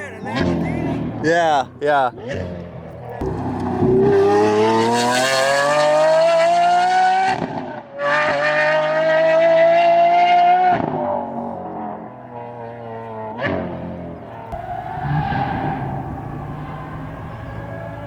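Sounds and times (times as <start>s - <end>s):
sports car engine accelerating: 2.3s - 7.4s, 14.5s - 18.0s.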